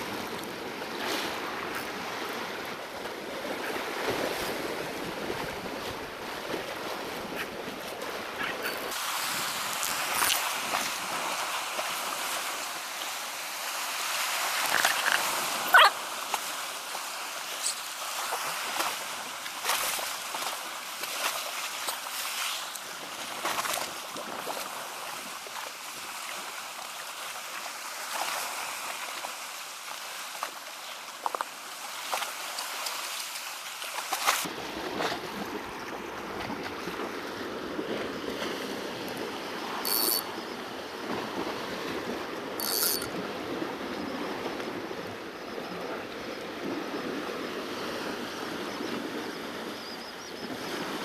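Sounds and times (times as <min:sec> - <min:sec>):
sea splashing against rocks: 0:00.0 - 0:39.9.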